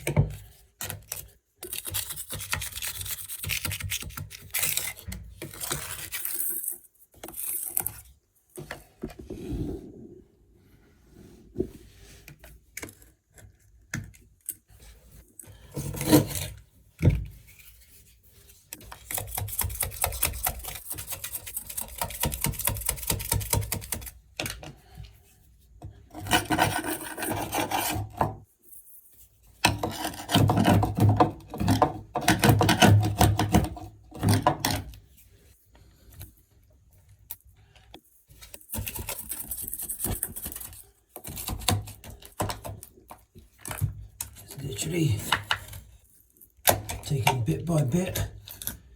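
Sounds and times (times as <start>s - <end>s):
blade scraper scraping sealant: 26.2s - 28.2s.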